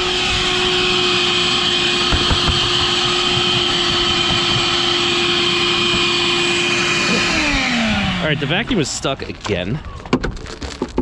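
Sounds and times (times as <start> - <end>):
vacuum cleaner motor whining: 0.0 - 9.5
debris knocking in hose: 1.4 - 7.2.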